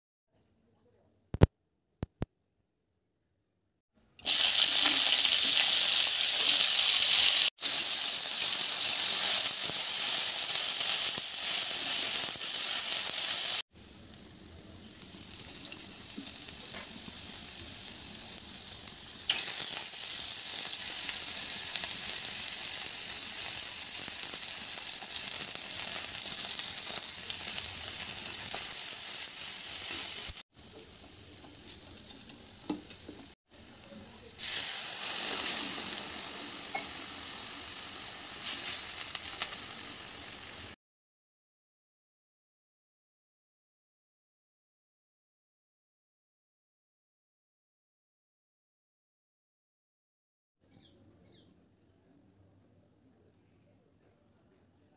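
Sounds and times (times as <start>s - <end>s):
vegetables sizzling in hot oil: 4.2s - 40.8s.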